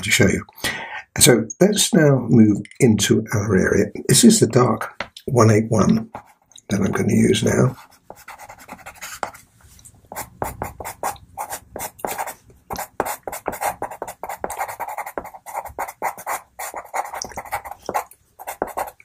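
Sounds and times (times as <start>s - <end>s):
pencil scratching on paper: 6.1s - 6.4s, 7.6s - 9.5s, 10.1s - 19.0s.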